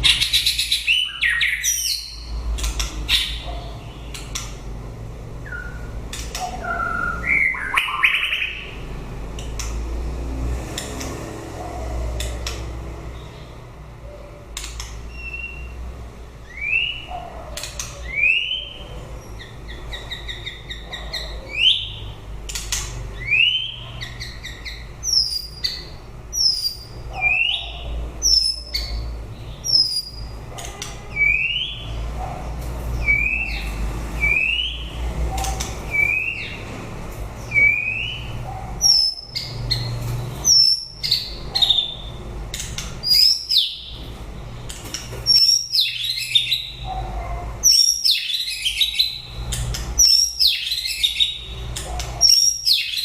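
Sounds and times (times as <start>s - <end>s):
bird whistling song: 0.0s - 2.3s, 5.4s - 8.8s, 15.1s - 15.8s, 16.4s - 30.4s, 31.1s - 32.0s, 33.0s - 36.6s, 37.5s - 42.2s, 43.0s - 44.0s, 45.3s - 46.9s, 47.6s - 51.6s, 52.2s - 53.0s
sharp clicks: 2.5s - 3.1s, 4.1s - 4.6s, 6.1s - 6.6s, 9.3s - 9.8s, 12.2s - 12.7s, 14.5s - 15.0s.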